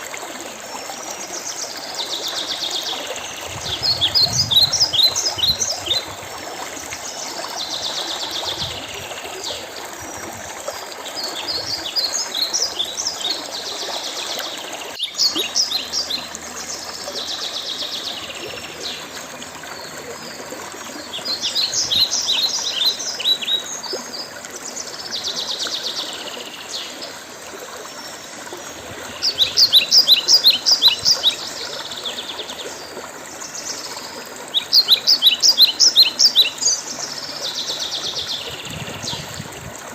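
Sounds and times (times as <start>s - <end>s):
songbirds chirping: 0.0s - 39.4s.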